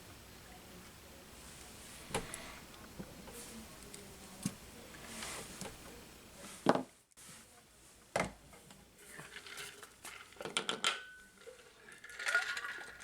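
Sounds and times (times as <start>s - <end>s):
soft rustling: 1.3s - 10.2s.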